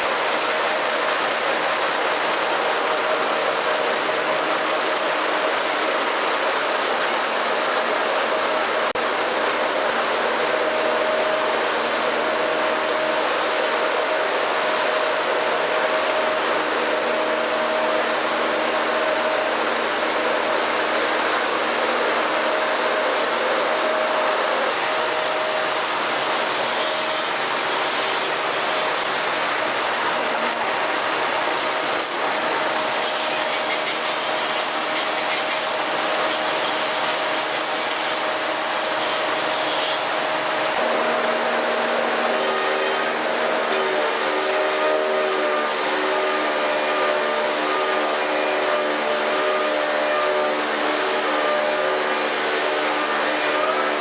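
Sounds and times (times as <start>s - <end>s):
steady machine whine: 0.0s - 54.0s
log-rounding machine whining: 24.7s - 40.8s.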